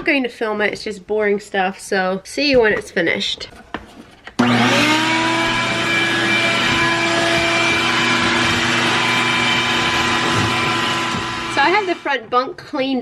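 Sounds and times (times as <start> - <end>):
vacuum cleaner running: 4.4 - 12.3.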